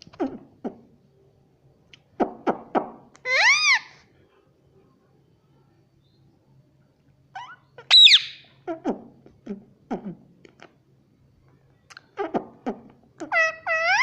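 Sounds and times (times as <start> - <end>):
parrot calling and screeching: 3.2 - 4.0, 7.4 - 8.6, 13.2 - 14.0.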